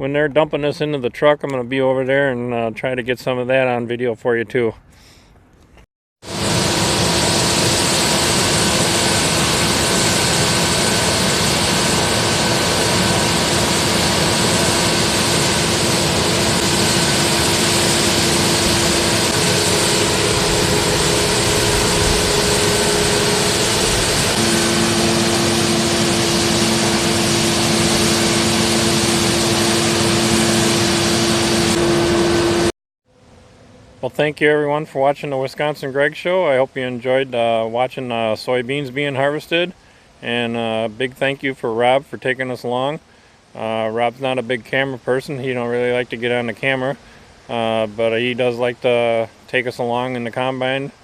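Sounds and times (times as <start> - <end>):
combine harvester running: 6.3 - 32.7.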